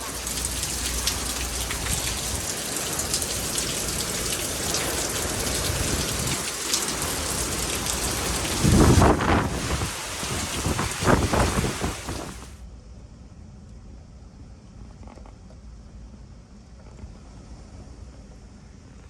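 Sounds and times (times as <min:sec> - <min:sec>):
heavy rain and wind: 0:00.0 - 0:12.6.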